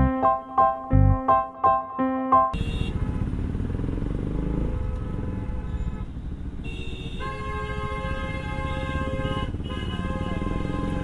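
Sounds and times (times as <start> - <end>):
vehicle horn: 2.5 - 3.2, 4.5 - 11.0
motorcycle engine running: 2.6 - 11.0.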